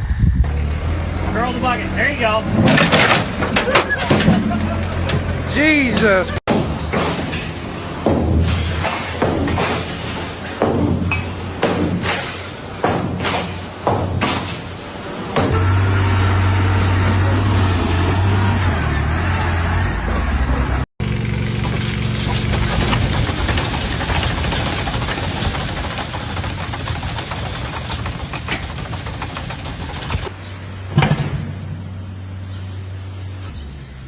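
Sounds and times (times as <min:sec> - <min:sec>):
engine running: 0:15.2 - 0:33.0.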